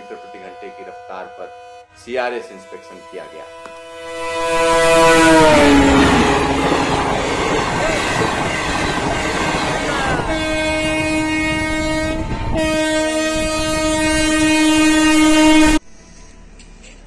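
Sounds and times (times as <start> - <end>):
locomotive horn blasts: 0.0 - 15.8
train coaches rushing past: 4.1 - 12.8.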